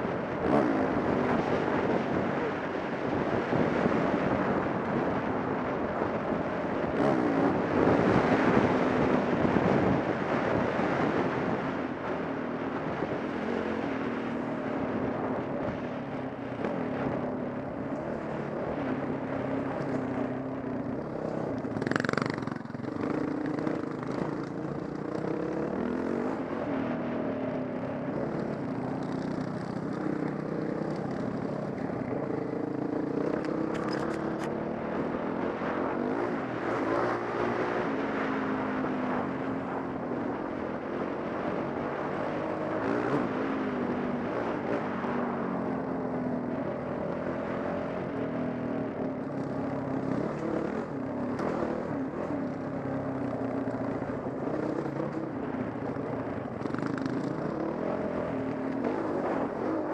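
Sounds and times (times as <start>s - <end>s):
dirt bike engine running: 0.0s - 38.7s.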